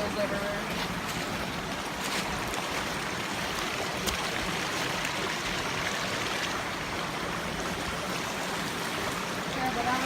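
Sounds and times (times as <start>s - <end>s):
water running over rocks: 0.0s - 10.0s.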